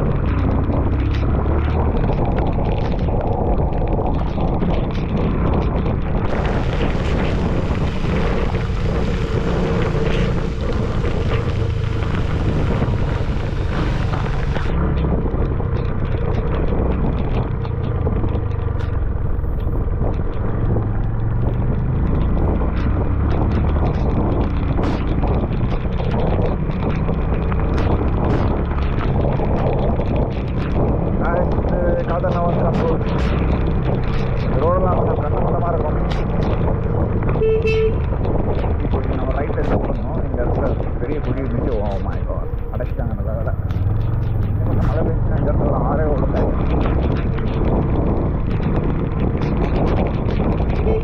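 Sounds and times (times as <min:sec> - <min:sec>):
motorcycle engine running: 0:00.0 - 0:51.0
wind buffeting microphone: 0:00.0 - 0:51.0
rain: 0:06.2 - 0:14.8.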